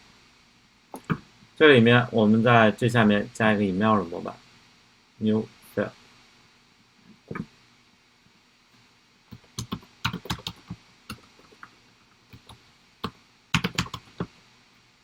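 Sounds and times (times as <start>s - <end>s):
computer keyboard typing: 9.3s - 11.7s, 12.3s - 14.3s.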